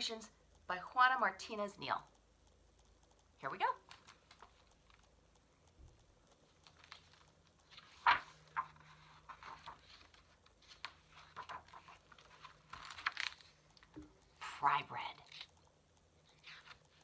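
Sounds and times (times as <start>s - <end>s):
paper pages rustling: 6.5s - 14.0s, 16.3s - 17.0s.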